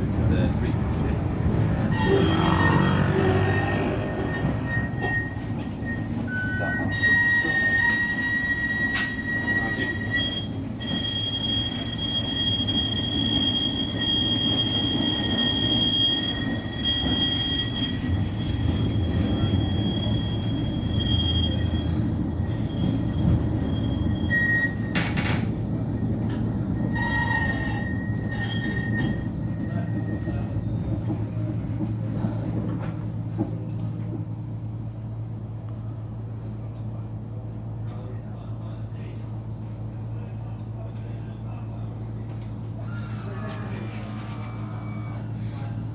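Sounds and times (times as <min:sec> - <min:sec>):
tram running rumble: 0:00.0 - 0:45.9
tram wheels squealing: 0:00.9 - 0:32.7, 0:42.7 - 0:45.9.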